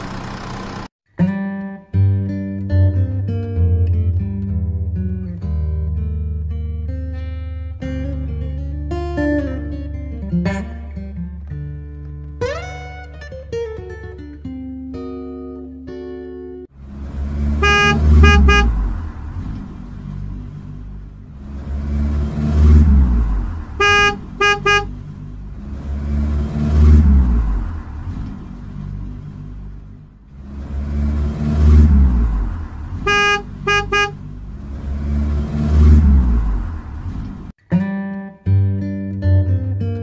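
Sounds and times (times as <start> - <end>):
car engine surging: 0.0 - 0.9, 16.7 - 37.6
short horn toots: 17.5 - 18.9, 23.7 - 25.0, 32.9 - 34.3.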